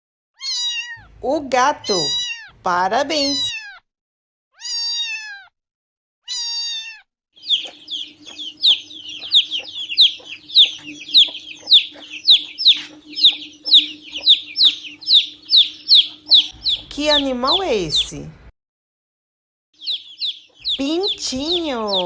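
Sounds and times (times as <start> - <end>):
cat meowing: 0.4 - 1.2, 1.8 - 2.6, 3.2 - 3.8, 4.6 - 5.6, 6.2 - 7.1
chicks peeping: 7.4 - 18.3, 19.8 - 22.0.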